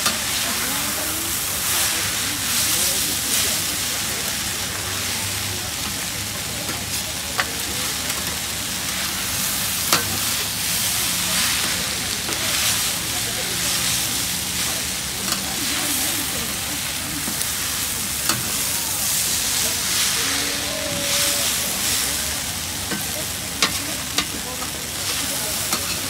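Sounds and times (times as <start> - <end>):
noodles sizzling on a griddle: 0.0 - 26.0
spatula clacking on griddle: 6.6 - 10.6, 13.7 - 15.8, 16.8 - 20.1, 22.8 - 26.0.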